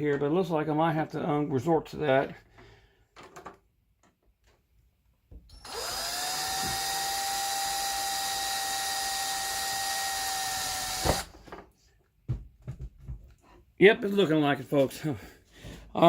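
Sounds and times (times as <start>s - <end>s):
cordless drill motor whine: 5.5s - 11.3s.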